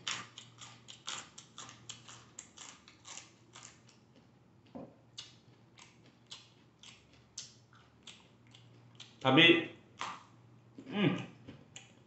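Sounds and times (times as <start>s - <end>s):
crisp crunches of chewing okra: 0.0s - 4.3s, 5.2s - 9.2s.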